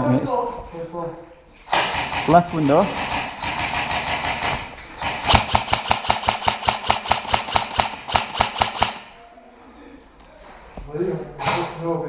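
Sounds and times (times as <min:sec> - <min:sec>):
airsoft rifle rapid fire: 0:01.7 - 0:09.2.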